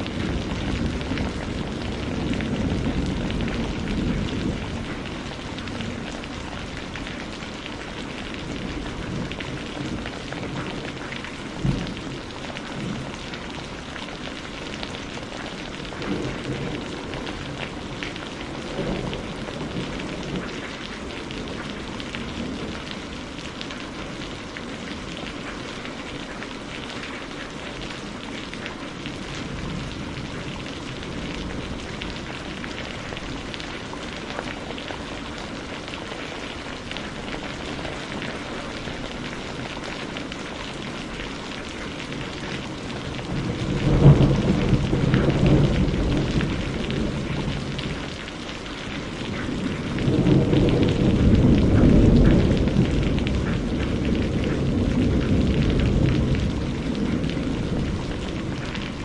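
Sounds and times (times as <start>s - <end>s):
thunder rumbling: 0.0s - 26.1s, 27.8s - 59.0s
steady rain falling: 0.0s - 59.0s.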